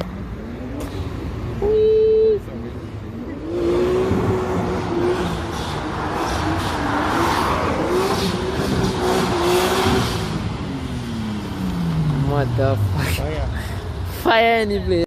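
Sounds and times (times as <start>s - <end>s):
car engine revving: 2.7s - 14.0s.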